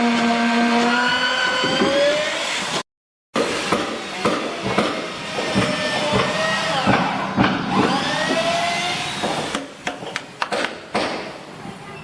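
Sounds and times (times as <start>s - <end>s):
power tool cutting wood: 0.0s - 2.8s, 3.4s - 9.7s.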